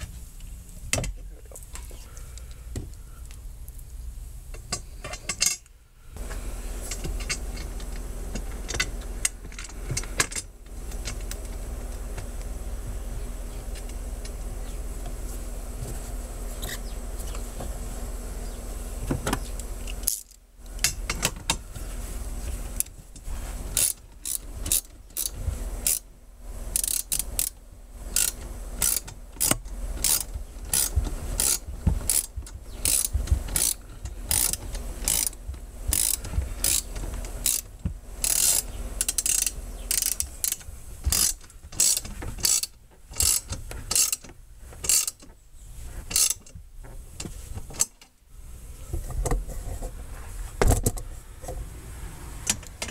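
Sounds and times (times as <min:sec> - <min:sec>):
ratchet wrench clicking: 0:19.9 - 0:21.1, 0:23.7 - 0:26.1, 0:26.7 - 0:45.3, 0:46.1 - 0:46.4.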